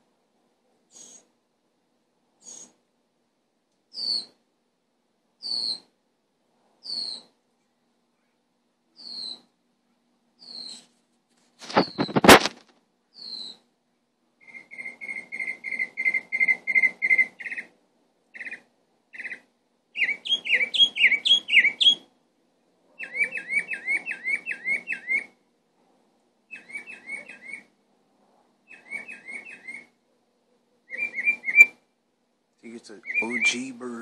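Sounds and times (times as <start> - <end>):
bird singing whistled notes: 3.9 - 4.3, 5.4 - 5.9, 6.8 - 7.3, 9.0 - 9.5, 10.4 - 10.8, 13.2 - 13.6, 14.4 - 17.7, 18.4 - 19.4, 20.0 - 22.1, 23.0 - 25.4, 26.5 - 27.7, 28.7 - 29.9, 30.8 - 31.8, 33.0 - 33.7.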